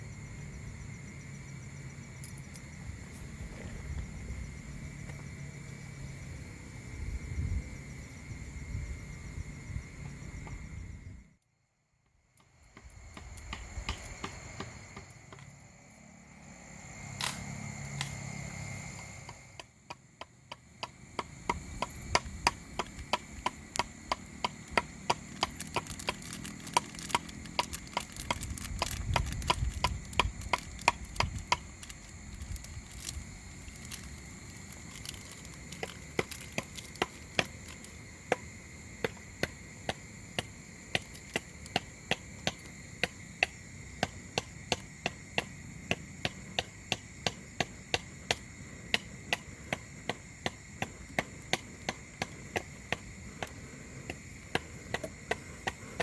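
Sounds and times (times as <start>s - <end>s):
wind rumbling on microphone: 0.0s - 11.4s, 12.7s - 15.2s, 21.2s - 42.9s
wood being chopped: 12.8s - 15.5s, 19.2s - 33.2s.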